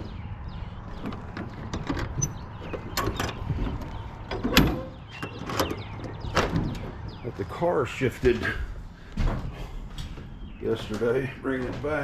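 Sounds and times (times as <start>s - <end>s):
metal door latch clicking: 0.9s - 7.0s, 9.7s - 12.0s
metal door clunk: 0.9s - 7.3s, 8.1s - 12.0s.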